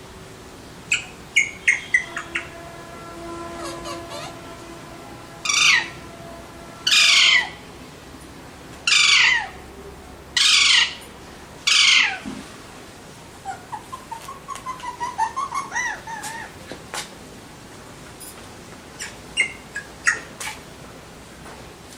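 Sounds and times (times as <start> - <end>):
parakeet chattering: 0.9 - 2.7, 3.6 - 4.5, 13.5 - 16.5
parakeet squawking: 0.9 - 2.7, 3.5 - 4.6, 5.4 - 6.0, 6.8 - 7.6, 13.5 - 16.5.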